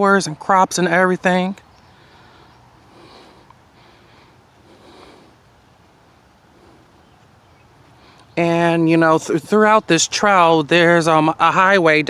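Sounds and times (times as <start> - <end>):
low steady hiss: 0.0 - 12.0
person breathing while walking: 1.8 - 8.4.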